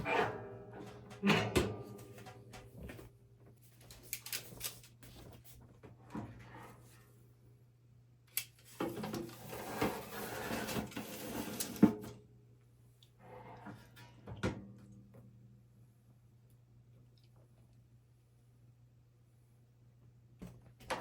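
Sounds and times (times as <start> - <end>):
dishes and utensils clattering: 0.0 - 2.7.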